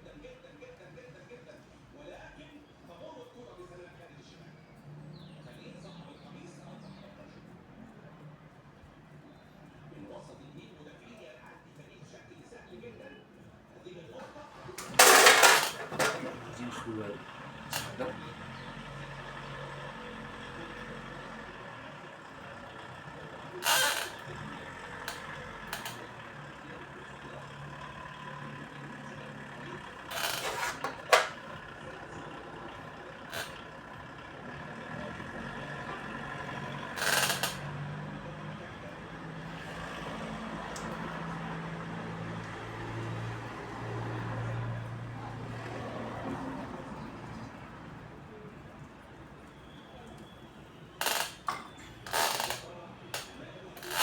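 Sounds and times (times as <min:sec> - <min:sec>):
low workshop hum: 0:13.1 - 0:54.0.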